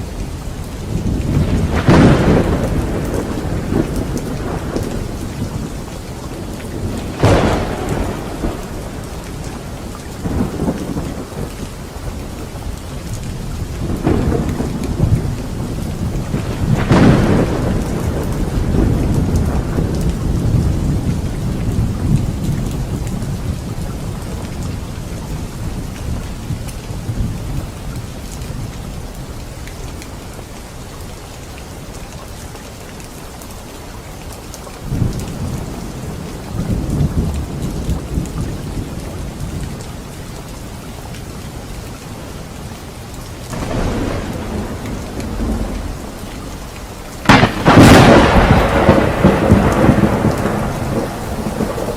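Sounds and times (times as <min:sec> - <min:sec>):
heavy rain: 0:00.0 - 0:51.9
rolling thunder: 0:00.9 - 0:27.7, 0:34.9 - 0:39.8, 0:43.5 - 0:51.9.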